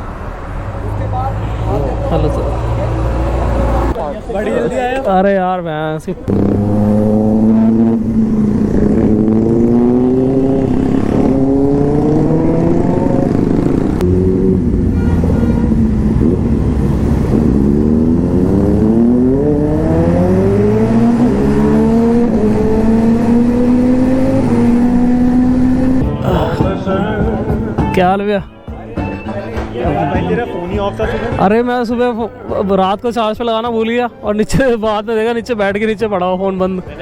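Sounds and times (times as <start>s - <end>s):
motorcycle engine revving: 6.3s - 27.8s.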